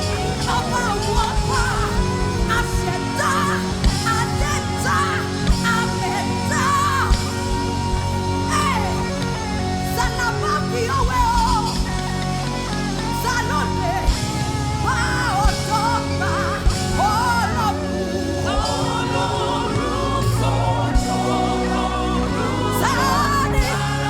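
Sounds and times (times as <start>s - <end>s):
steady drum beat: 18.4s - 24.0s.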